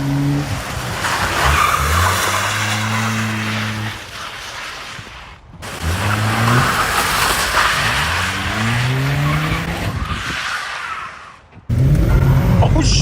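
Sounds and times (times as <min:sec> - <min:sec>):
tyres squealing on pavement: 0:00.2 - 0:11.7
car engine revving: 0:05.6 - 0:10.3.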